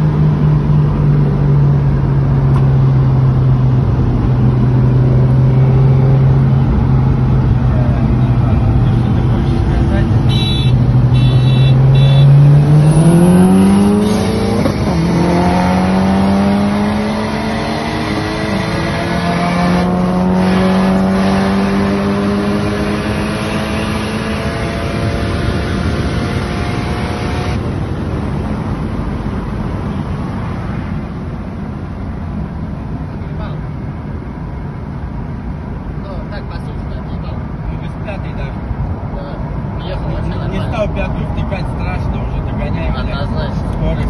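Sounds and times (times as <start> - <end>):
cars accelerating hard: 0.0 - 31.0.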